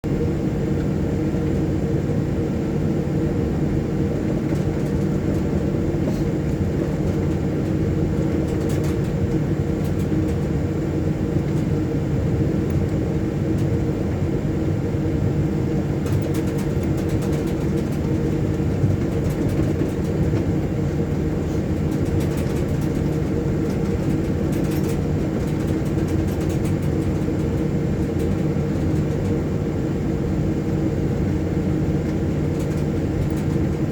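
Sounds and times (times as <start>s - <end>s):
aircraft engines humming near idle: 0.0s - 33.9s
faint clicks and rattles: 4.4s - 10.5s, 16.0s - 20.5s, 21.7s - 29.4s, 32.0s - 33.9s.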